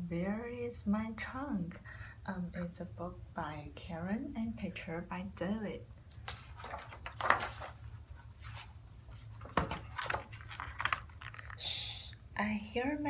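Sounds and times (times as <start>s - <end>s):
book handling knocks and rustles: 6.2s - 11.6s.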